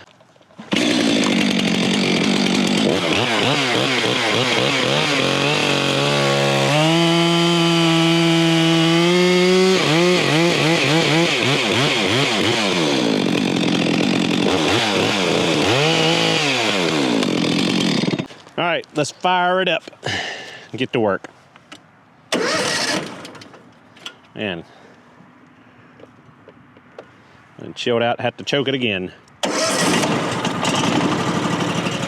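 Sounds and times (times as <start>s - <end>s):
chainsaw revving: 0.6s - 18.3s, 22.3s - 23.5s, 29.4s - 32.0s.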